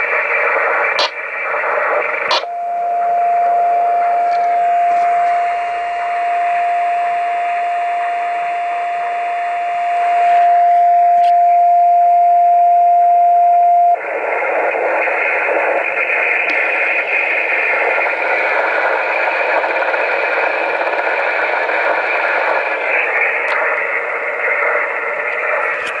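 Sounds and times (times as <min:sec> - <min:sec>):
radio beat tone: 0:00.0 - 0:06.7, 0:13.8 - 0:26.0
radio receiver hiss: 0:00.0 - 0:11.5, 0:13.7 - 0:26.0.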